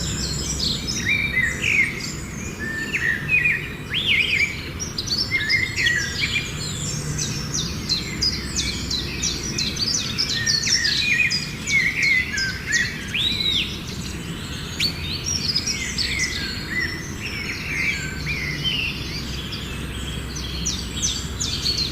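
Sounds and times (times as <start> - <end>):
small birds chirping: 0.0 - 21.9.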